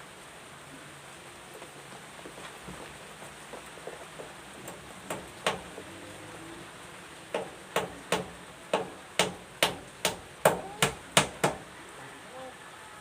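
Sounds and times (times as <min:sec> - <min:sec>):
hammer striking wood: 0:04.7 - 0:05.7, 0:07.3 - 0:11.6.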